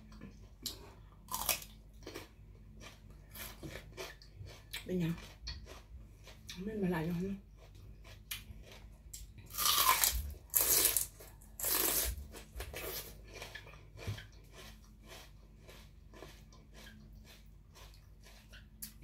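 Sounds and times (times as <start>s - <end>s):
chewing: 0.0s - 6.6s, 7.5s - 19.0s
crunching bitter melon: 0.7s - 2.3s, 8.0s - 19.0s.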